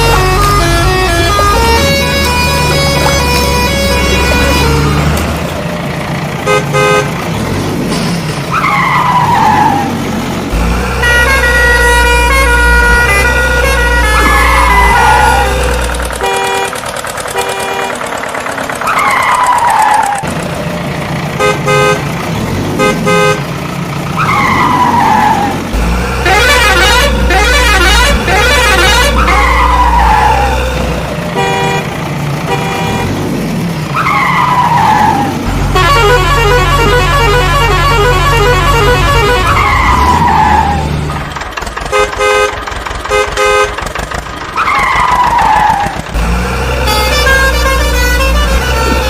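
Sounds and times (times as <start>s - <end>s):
cartoon horn toots: 0.0s - 5.3s, 6.4s - 7.2s, 11.0s - 18.2s, 21.4s - 22.1s, 22.8s - 23.5s, 26.2s - 30.4s, 31.4s - 33.2s, 34.0s - 40.8s, 41.8s - 44.0s, 46.8s - 49.0s
cartoon engine rumble: 0.0s - 8.3s.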